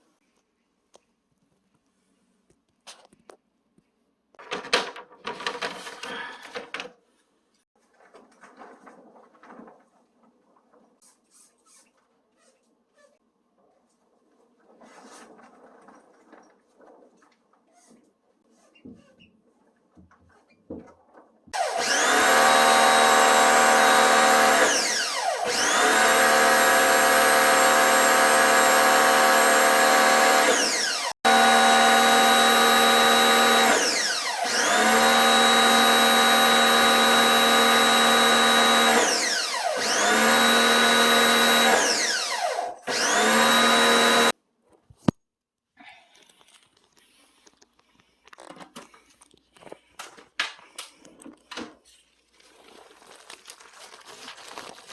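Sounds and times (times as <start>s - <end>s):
power tool motor whining: 21.6s - 44.3s.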